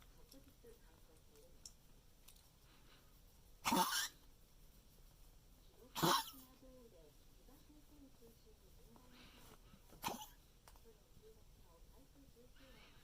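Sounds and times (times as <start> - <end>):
dog coughing: 3.6 - 4.2, 6.0 - 6.5, 10.0 - 10.4.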